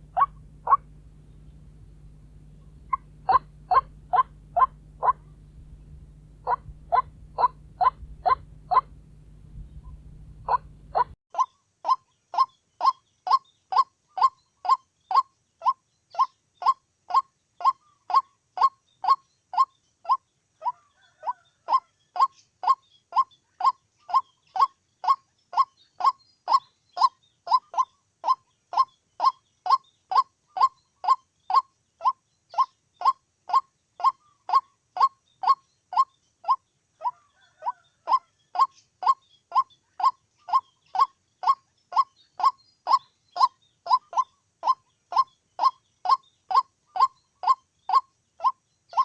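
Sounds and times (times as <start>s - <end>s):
bird calling with honking notes: 0.0s - 11.5s.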